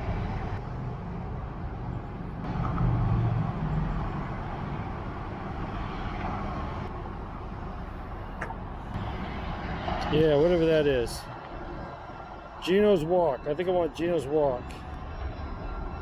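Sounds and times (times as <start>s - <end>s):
road traffic rumble: 0.0s - 16.0s
vehicle passing: 2.2s - 7.2s.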